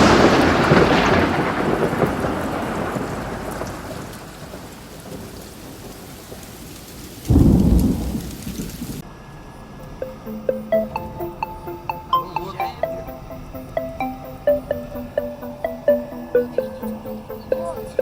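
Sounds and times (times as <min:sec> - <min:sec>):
thunderclap rumbling: 0:00.0 - 0:09.0
steady rain hiss: 0:00.0 - 0:09.7.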